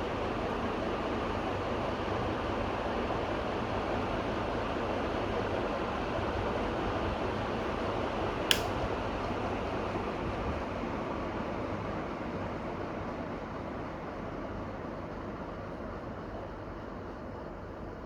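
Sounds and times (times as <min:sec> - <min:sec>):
fan motor hum: 0:00.0 - 0:16.4
sharp click: 0:08.5 - 0:08.8.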